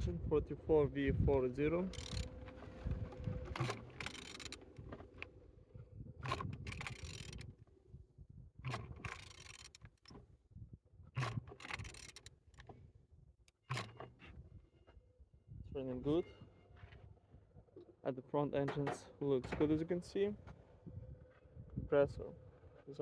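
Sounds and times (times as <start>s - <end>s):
mechanical scraping and clicking: 1.7s - 5.3s, 6.2s - 7.5s, 8.6s - 10.2s, 11.2s - 12.7s, 13.5s - 14.2s
engine turned over by hand: 1.8s - 5.2s, 6.2s - 7.5s, 8.6s - 10.2s, 11.2s - 12.7s.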